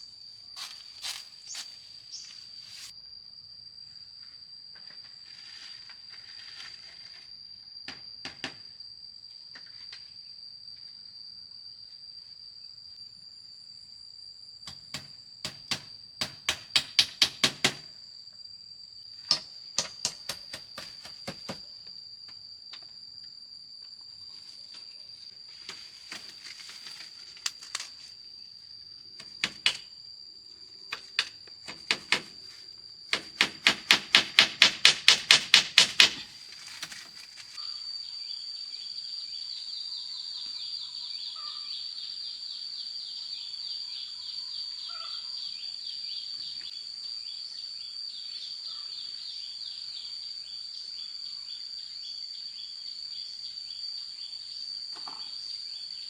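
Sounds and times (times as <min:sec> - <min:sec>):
insects chirring: 0:00.0 - 0:56.0
sharp knocks: 0:14.7 - 0:17.9, 0:19.3 - 0:21.7, 0:33.1 - 0:36.4.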